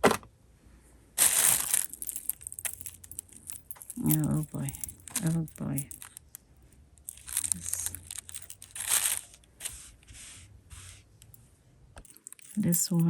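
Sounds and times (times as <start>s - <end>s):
packaging crinkling: 1.2s - 3.0s, 7.1s - 9.4s.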